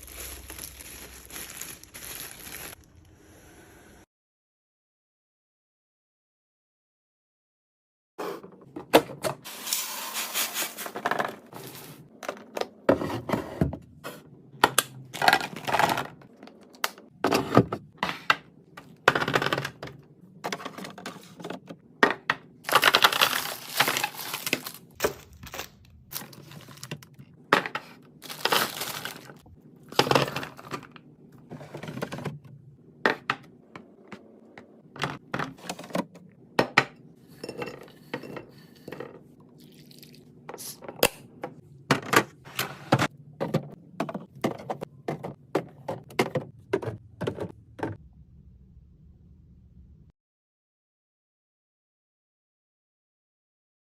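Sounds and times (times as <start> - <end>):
packaging rustling: 0.0 - 2.9, 22.7 - 27.1, 28.2 - 30.7
items clinking in a fridge: 8.2 - 39.4, 40.5 - 48.0.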